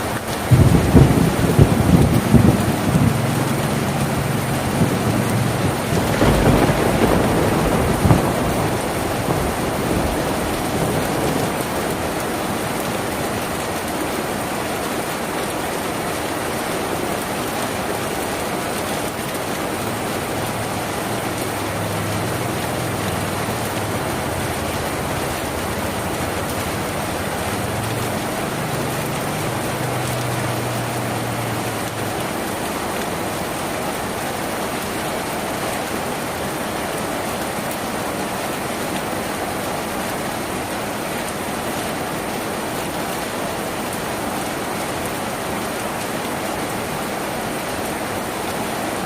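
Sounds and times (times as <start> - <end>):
rain on a tin roof: 0.0 - 49.0
thunder rumbling: 0.4 - 12.2.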